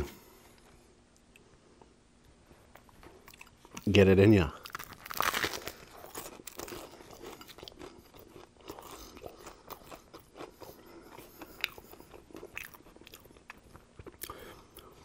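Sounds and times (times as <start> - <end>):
chewing crunchy sandwich: 4.6 - 15.0.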